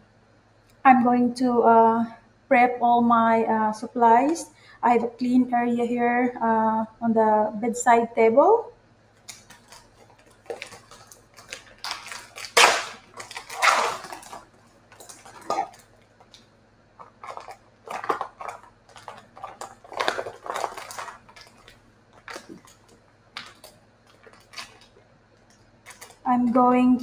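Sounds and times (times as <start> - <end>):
packaging crinkling and rustling: 9.1 - 27.0.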